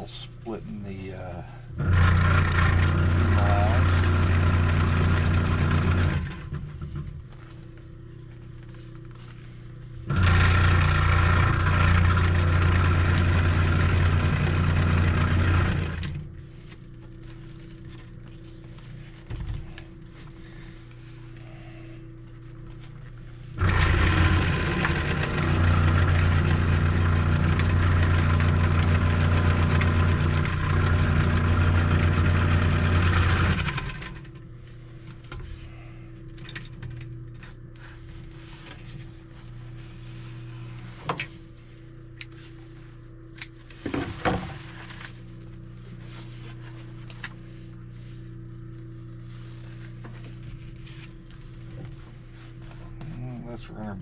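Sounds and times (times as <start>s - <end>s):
faint steady hum: 0.0s - 54.0s
sewing machine stitching: 1.8s - 6.6s, 10.1s - 16.2s, 23.6s - 34.3s.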